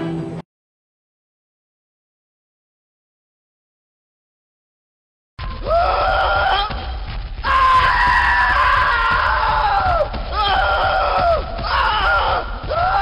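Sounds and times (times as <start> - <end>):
high-pitched human screams: 5.6 - 6.8, 7.4 - 13.0.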